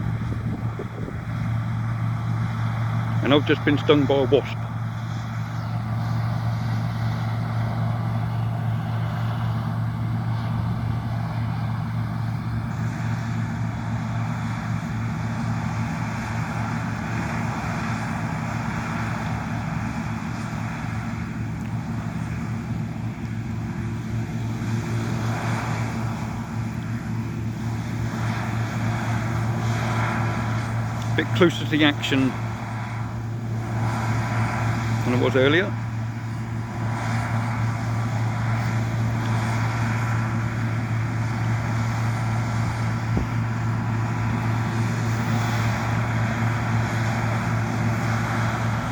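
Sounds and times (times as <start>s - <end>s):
combine harvester engine drone: 0.0s - 48.9s
machinery rushing noise: 27.7s - 40.4s.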